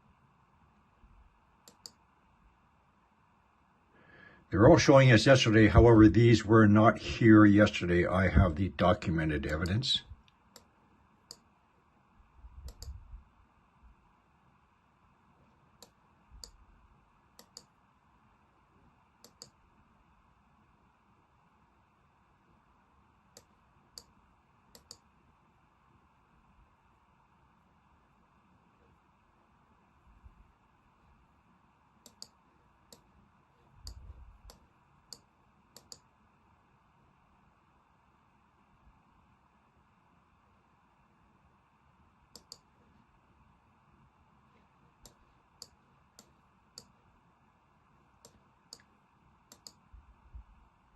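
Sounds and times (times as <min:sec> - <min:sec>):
low room hiss: 0:00.0 - 0:50.9
computer mouse clicks: 0:01.6 - 0:02.0, 0:12.6 - 0:13.0, 0:15.8 - 0:16.6, 0:17.4 - 0:17.8, 0:19.2 - 0:19.6, 0:23.3 - 0:25.1, 0:32.0 - 0:33.1, 0:33.7 - 0:36.1, 0:42.3 - 0:42.8, 0:45.0 - 0:47.0, 0:48.2 - 0:49.9.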